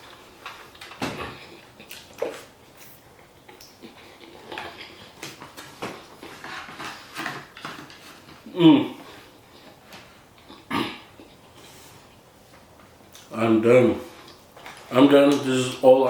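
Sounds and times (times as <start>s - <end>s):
chewing and mouth noises: 0.0s - 6.8s.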